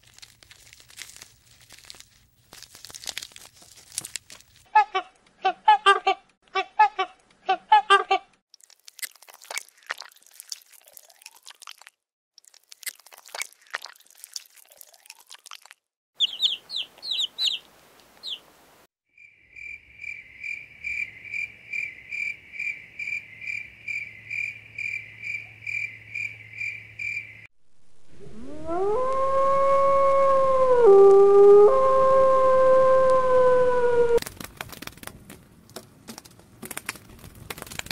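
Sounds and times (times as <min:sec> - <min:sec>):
high falling chirps: 0:16.2 - 0:17.6
insect chirping: 0:19.1 - 0:27.5
low hum: 0:27.6 - 0:34.2.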